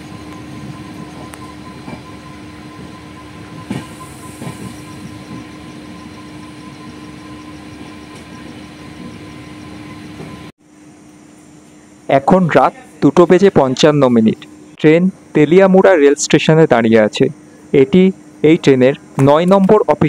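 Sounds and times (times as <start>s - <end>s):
train wheels rumbling on rails: 0.0s - 10.5s
constant hum: 0.0s - 20.0s.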